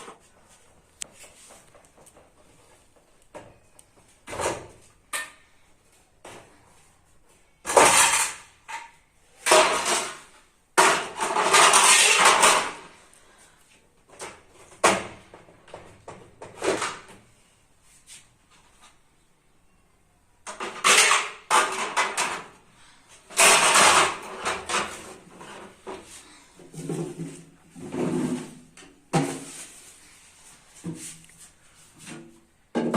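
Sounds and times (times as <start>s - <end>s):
dishes and containers clattering: 7.7s - 12.9s, 20.5s - 22.6s, 23.3s - 26.0s.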